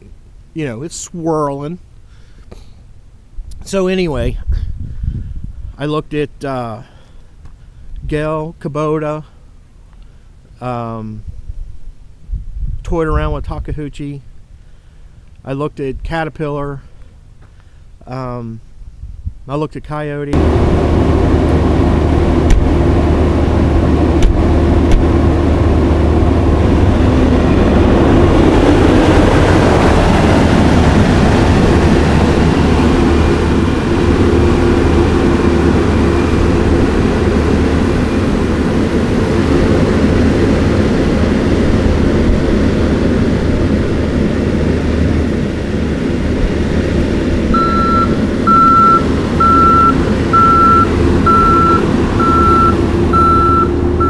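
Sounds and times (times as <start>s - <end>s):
skid steer engine running: 20.3s - 54.0s
reversing alarm beeps: 47.6s - 53.8s.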